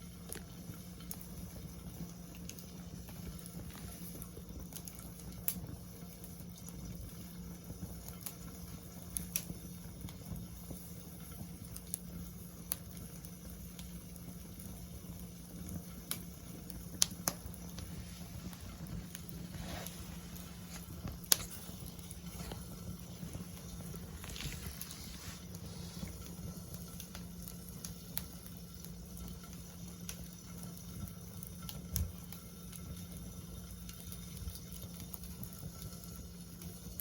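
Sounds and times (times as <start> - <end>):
wood fire crackling and popping: 0.0 - 37.0
soft hiss: 15.1 - 30.7
steady low hum: 15.1 - 33.8.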